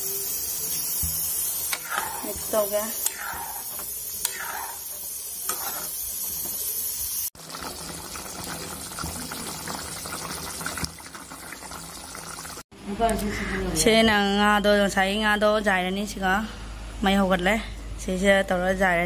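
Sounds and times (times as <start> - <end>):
metal ladle scraping a pot: 1.8 - 4.9, 5.5 - 6.0
curry boiling in a pot: 6.5 - 12.6.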